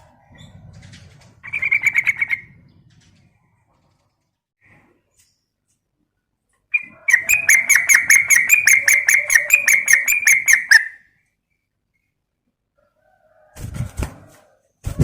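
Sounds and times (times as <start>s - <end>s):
bird chattering call: 6.8s - 11.0s.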